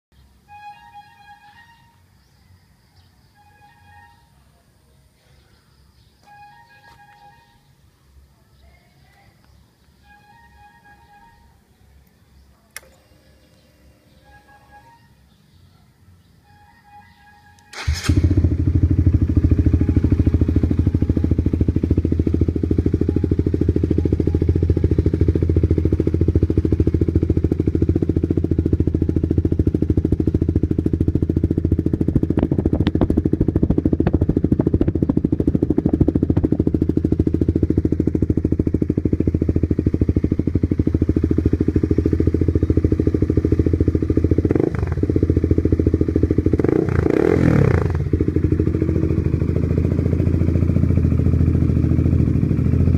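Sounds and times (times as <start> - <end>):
motorcycle engine running: 17.7 - 52.9.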